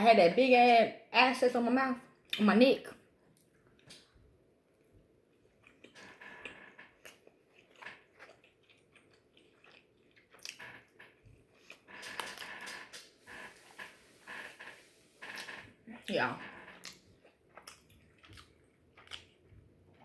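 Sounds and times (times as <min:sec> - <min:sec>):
person biting and chewing: 0:05.6 - 0:13.5, 0:16.8 - 0:19.5.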